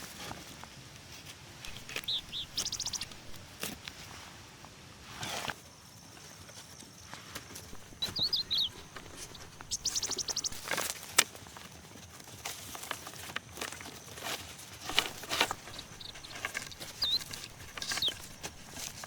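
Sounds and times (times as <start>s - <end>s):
birds warbling: 1.7s - 3.6s, 7.7s - 10.8s, 14.9s - 19.0s
knocks and rustles: 1.7s - 3.6s, 7.7s - 10.9s, 14.8s - 19.0s
bird trill of high notes: 7.7s - 10.7s.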